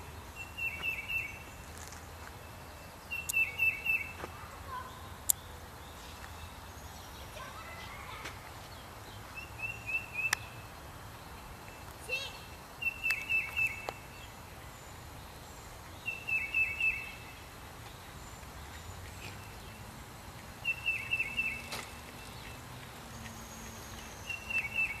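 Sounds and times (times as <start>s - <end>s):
low steady background noise: 0.0s - 25.0s
songbird repeating song phrase: 0.4s - 1.5s, 3.1s - 15.0s, 15.9s - 17.5s, 20.6s - 25.0s.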